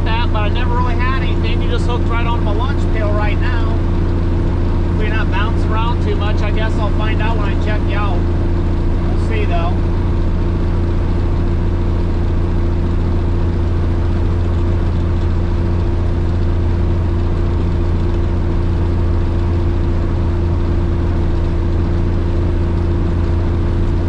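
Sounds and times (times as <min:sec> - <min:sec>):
truck diesel engine drone: 0:00.0 - 0:24.0.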